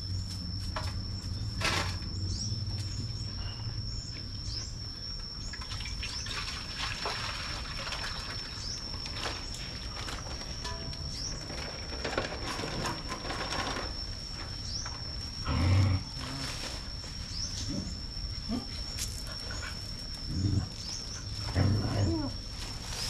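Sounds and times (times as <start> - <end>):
dog low vocal sounds: 17.6 - 22.4.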